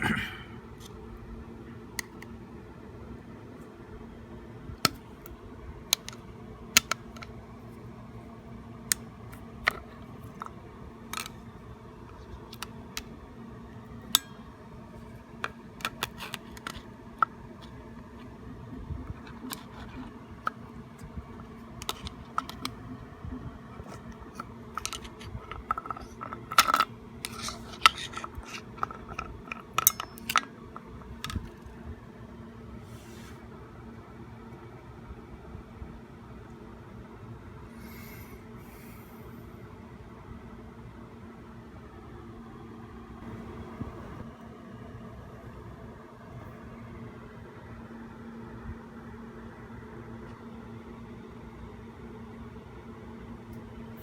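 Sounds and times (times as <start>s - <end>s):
steady low hum: 0.0s - 54.0s
clicks and metallic taps of tools: 28.8s - 30.5s.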